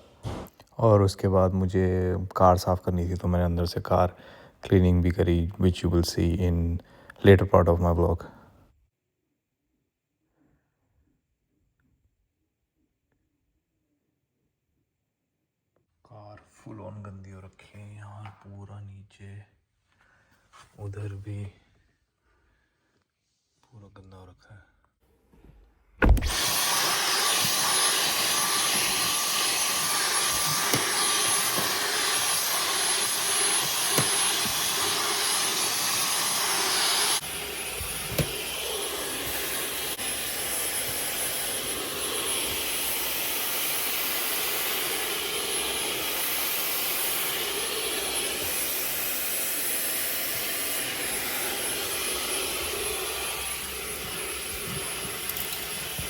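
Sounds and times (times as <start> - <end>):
vacuum cleaner running: 26.0 - 56.0.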